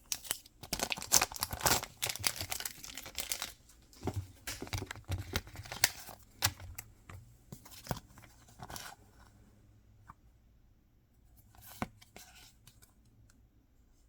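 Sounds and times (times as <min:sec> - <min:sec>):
packaging crinkling and tearing: 0:00.0 - 0:03.6.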